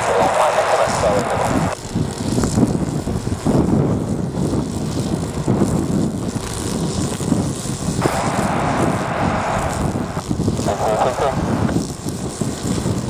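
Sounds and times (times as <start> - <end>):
jet engines running: 0.0 - 13.0
wind rumble on microphone: 0.0 - 13.0
mid-range hiss: 8.0 - 11.8.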